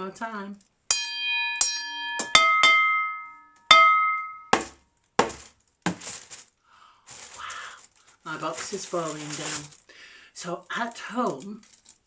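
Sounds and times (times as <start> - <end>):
metal saucepan struck ringing: 0.9 - 4.8
thumps on cardboard box: 4.6 - 6.4.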